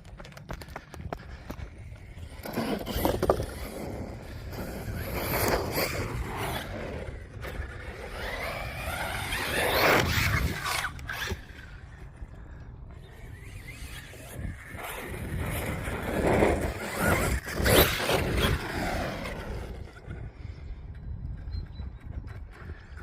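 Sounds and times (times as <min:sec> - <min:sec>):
rc truck electric motor whine: 0:02.4 - 0:12.3, 0:13.0 - 0:20.1.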